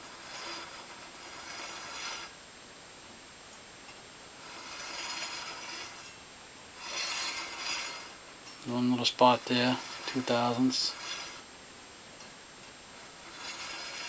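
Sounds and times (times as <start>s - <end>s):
saw blade scraping when turned: 0.0s - 2.4s, 4.4s - 6.2s, 6.8s - 11.5s, 13.0s - 14.0s.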